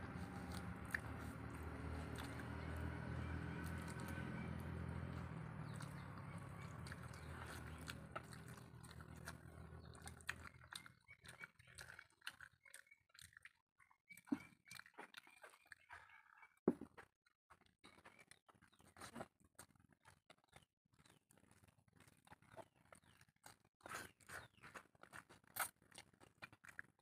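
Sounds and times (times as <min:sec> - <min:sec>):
wet mouth chewing clicks: 0:00.1 - 0:15.9.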